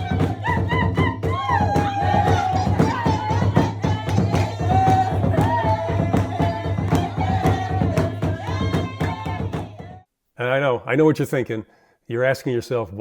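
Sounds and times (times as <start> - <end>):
fast steady drumming: 0.0 - 10.0
person singing: 0.0 - 10.0.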